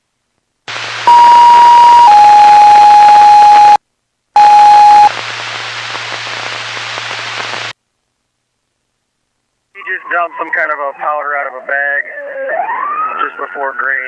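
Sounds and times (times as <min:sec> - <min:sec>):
radio hiss and hum: 0:00.7 - 0:03.8, 0:04.4 - 0:07.8
radio alert tone beeps: 0:01.1 - 0:03.8, 0:04.4 - 0:05.1.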